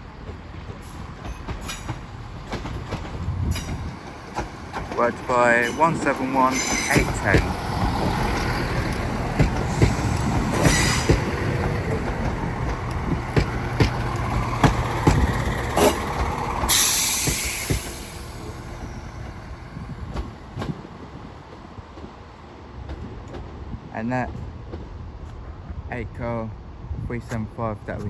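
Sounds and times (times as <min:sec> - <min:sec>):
wheels clicking over rail joints: 0:00.0 - 0:25.4
train engines droning: 0:00.0 - 0:28.0
air brakes hissing: 0:09.6 - 0:11.7, 0:15.7 - 0:19.3.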